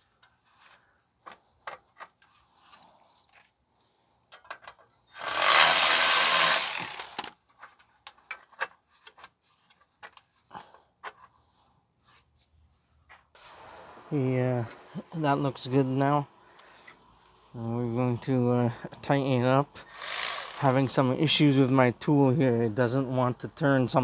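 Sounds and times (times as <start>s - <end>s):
cordless power tool running: 5.2s - 7.3s, 20.0s - 20.7s.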